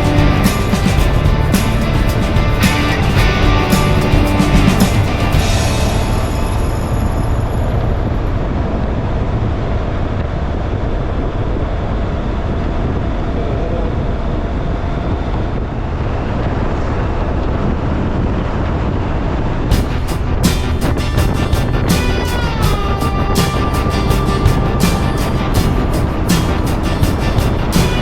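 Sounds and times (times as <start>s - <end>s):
motorcycle engine: 0.0s - 9.3s, 19.8s - 28.0s
road drone: 0.0s - 28.0s.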